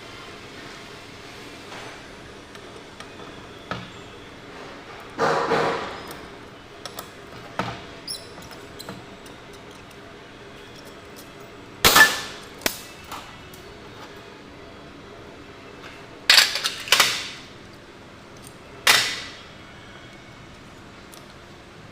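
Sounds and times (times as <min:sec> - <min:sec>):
metal parts clicking and clinking: 0:05.1 - 0:10.0, 0:16.3 - 0:19.4.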